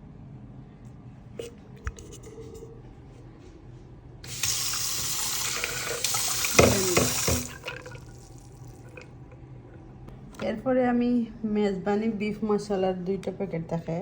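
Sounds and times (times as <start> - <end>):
kitchen tap running: 4.2 - 9.1.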